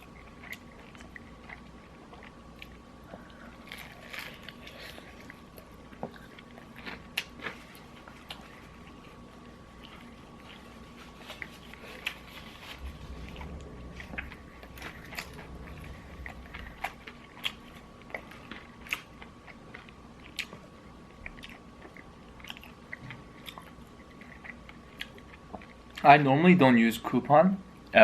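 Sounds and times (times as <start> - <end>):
chewing crispy fried chicken: 0.0 - 26.2.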